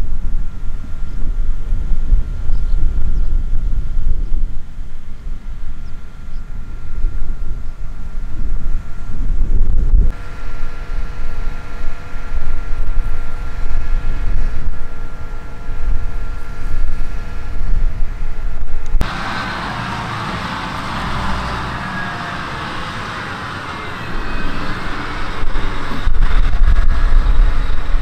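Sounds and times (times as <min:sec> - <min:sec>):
harvest machinery engine: 0:04.7 - 0:28.0
machinery hiss: 0:19.0 - 0:28.0.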